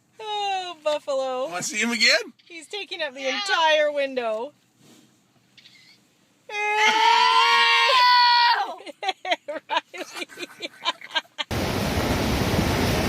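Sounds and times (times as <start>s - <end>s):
long high-pitched cry: 6.5s - 8.9s
wind and surf: 11.5s - 13.0s.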